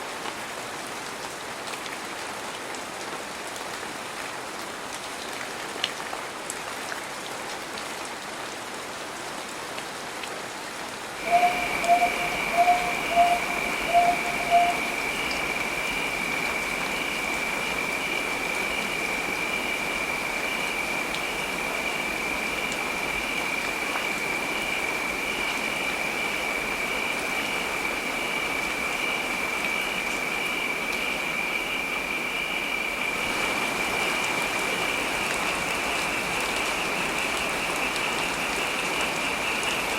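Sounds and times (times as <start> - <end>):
heavy rain: 0.0 - 39.9
steady high-pitched tone: 11.2 - 15.7.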